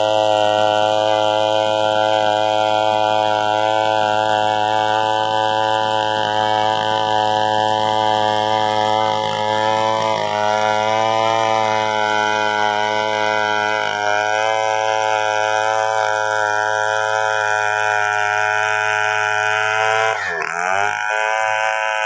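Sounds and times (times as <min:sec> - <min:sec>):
chainsaw running: 0:00.0 - 0:22.0.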